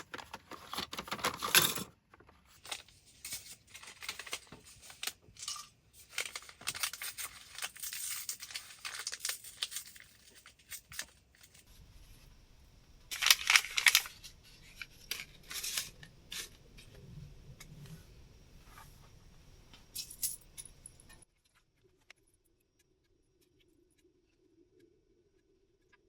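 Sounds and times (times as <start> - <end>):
rustling and crinkling material: 0.0 - 12.3, 13.1 - 17.1.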